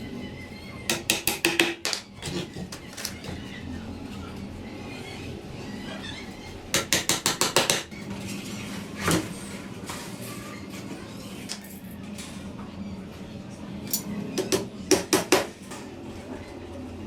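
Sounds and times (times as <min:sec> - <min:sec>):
hammer tapping on wood: 0:00.9 - 0:02.0.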